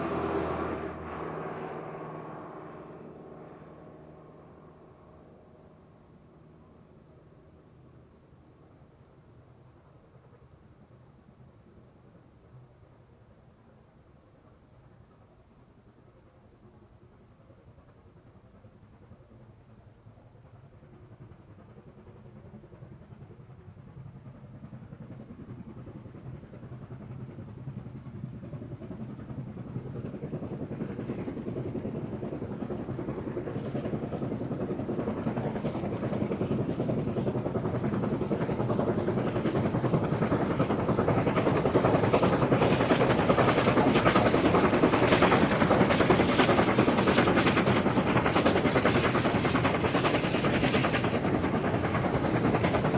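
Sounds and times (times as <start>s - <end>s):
steam locomotive chuffing: 16.8s - 52.9s.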